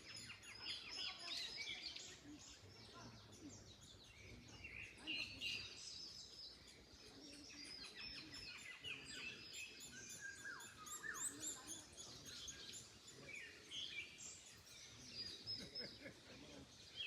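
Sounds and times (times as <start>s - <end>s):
songbirds chirping and whistling: 0.0s - 17.0s.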